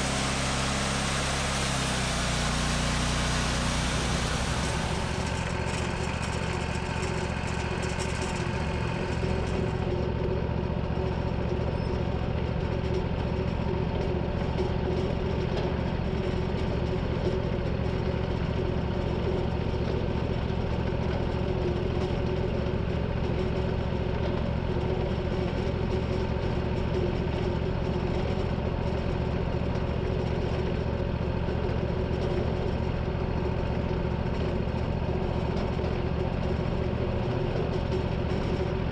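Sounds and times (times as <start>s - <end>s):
sawmill engine running: 0.0s - 11.2s.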